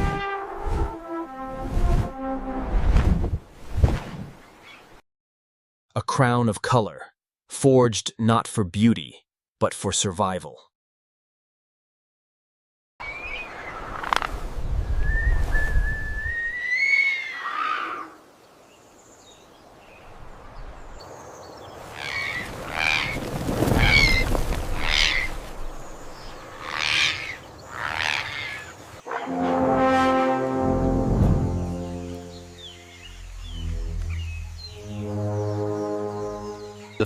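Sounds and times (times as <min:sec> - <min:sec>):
bird whistling: 0:15.0 - 0:17.2.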